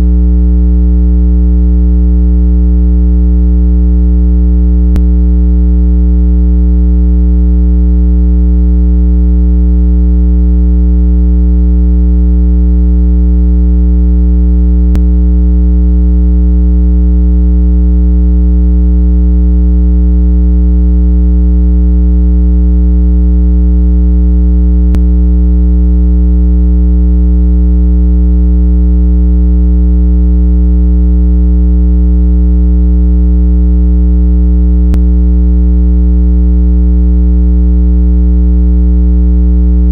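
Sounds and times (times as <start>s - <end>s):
continuous low tone: 0.0s - 0.3s, 4.9s - 5.2s, 14.7s - 15.7s, 24.8s - 25.2s, 34.8s - 35.2s.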